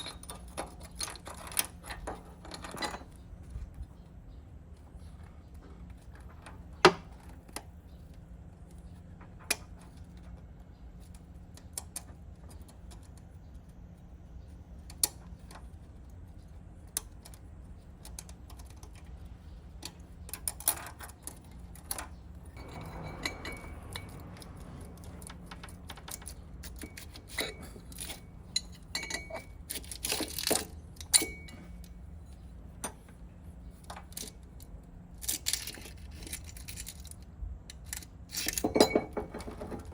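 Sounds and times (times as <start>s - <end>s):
metal tools clinking: 0.0s - 3.3s, 20.4s - 32.0s, 35.2s - 37.2s, 37.8s - 39.9s.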